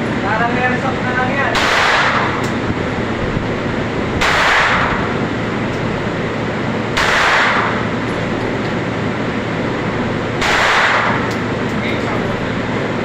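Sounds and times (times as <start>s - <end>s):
steady loud noise: 0.0s - 13.0s
gunshots: 1.5s - 2.4s, 4.2s - 5.2s, 7.0s - 7.9s, 10.4s - 11.3s.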